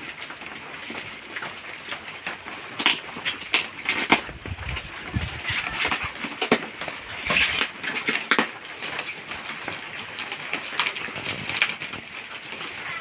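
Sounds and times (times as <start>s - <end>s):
wrapping paper tearing: 2.7s - 13.0s.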